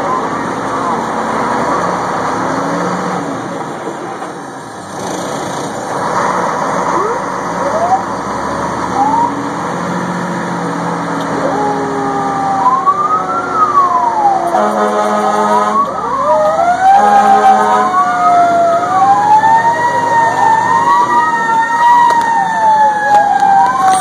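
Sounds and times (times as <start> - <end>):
fire engine running: 0.0 - 24.0
siren whoops and wail: 6.9 - 8.1, 8.9 - 9.4, 11.3 - 24.0.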